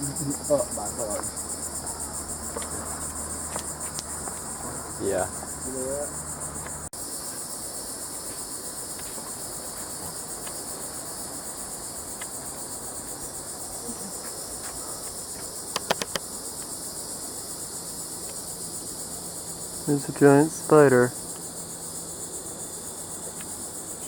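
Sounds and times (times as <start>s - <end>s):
insect chorus trilling: 0.0s - 24.0s
sharp clicks: 15.7s - 16.3s.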